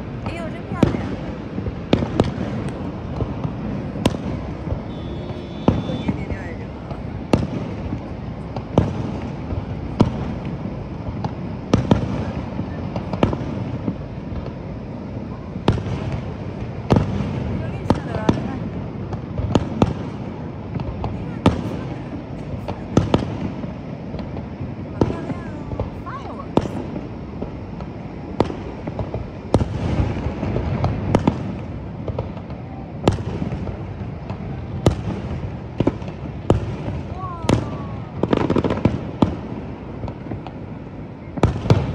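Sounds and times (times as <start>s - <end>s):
fireworks shells bursting: 0.0s - 12.4s
fireworks bursting: 0.0s - 41.9s.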